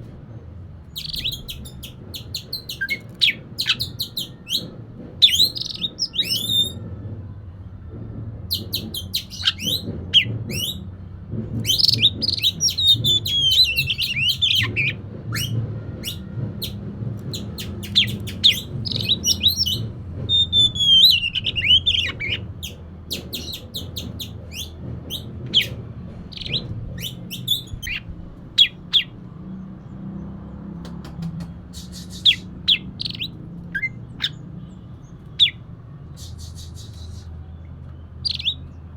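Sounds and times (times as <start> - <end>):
bird chips and clicks: 1.0 - 6.6, 11.6 - 16.8, 17.4 - 28.0, 30.8 - 34.4.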